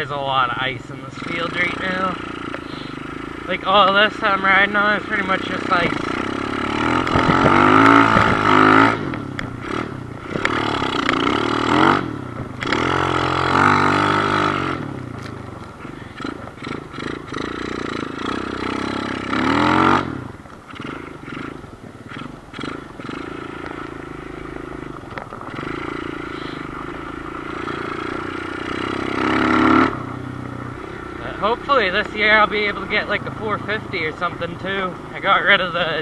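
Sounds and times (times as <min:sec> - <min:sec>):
small motorbike engine revving: 0:01.1 - 0:36.0.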